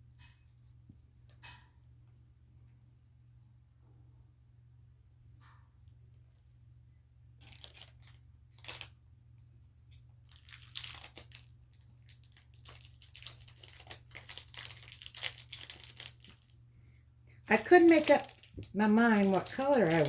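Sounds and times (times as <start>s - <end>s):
packaging crinkling: 7.4s - 9.0s, 10.2s - 16.6s, 17.3s - 20.0s.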